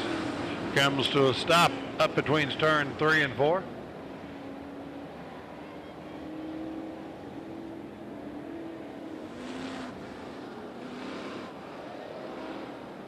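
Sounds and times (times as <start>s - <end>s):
distant race car engines: 0.0s - 13.0s
race cars passing: 0.0s - 13.0s.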